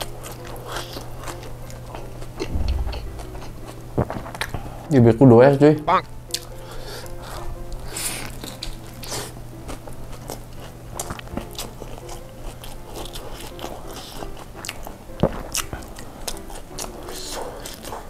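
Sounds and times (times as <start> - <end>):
wet crunchy chewing: 0.0 - 4.5, 6.4 - 18.0
sharp knock: 2.5 - 4.3
biting into wrap: 8.0 - 18.0.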